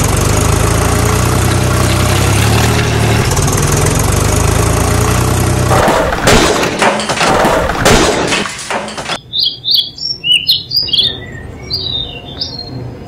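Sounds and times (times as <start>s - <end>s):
loud dense noise with knocks: 5.7s - 9.2s
small birds chirping: 9.2s - 13.0s.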